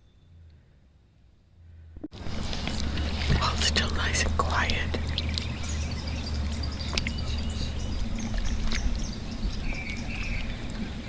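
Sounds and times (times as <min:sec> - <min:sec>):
low rumble: 0:00.0 - 0:11.0
birds chirping: 0:02.2 - 0:11.0.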